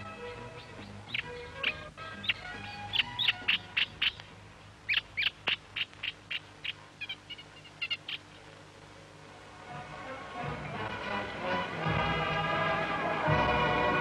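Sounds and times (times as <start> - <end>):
sustained music notes: 0.0 - 4.5, 9.2 - 14.0
bird chirps: 0.1 - 8.5.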